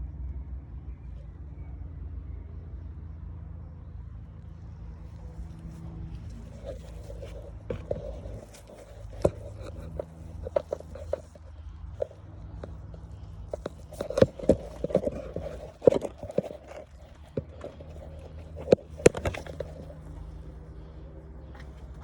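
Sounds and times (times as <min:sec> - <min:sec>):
car engine idling: 0:03.9 - 0:22.0
sharp clicks and knocks: 0:06.4 - 0:20.5.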